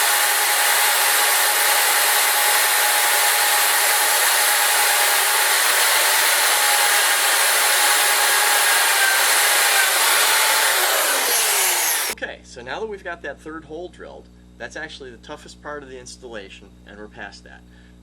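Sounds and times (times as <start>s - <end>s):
electric drill boring metal: 0.0s - 12.2s.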